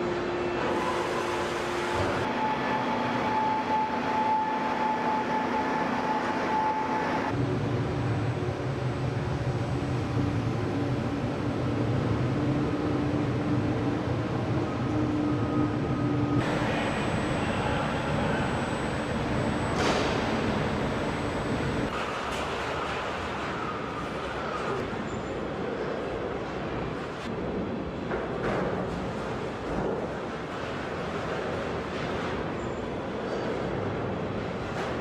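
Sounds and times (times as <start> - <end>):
factory machinery humming: 0.0 - 35.0.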